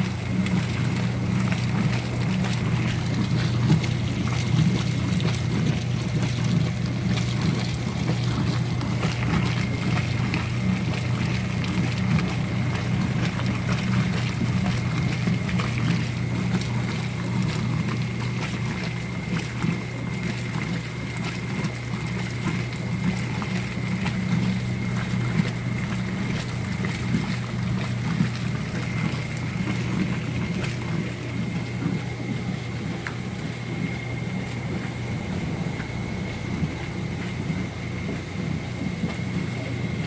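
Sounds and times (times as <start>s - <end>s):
washing machine motor hum: 0.0s - 40.0s.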